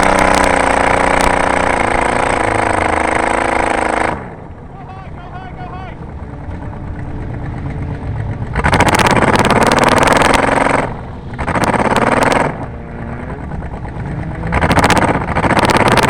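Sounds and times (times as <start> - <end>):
car engine revving: 0.0 - 16.0
rattling clatter: 6.0 - 16.0.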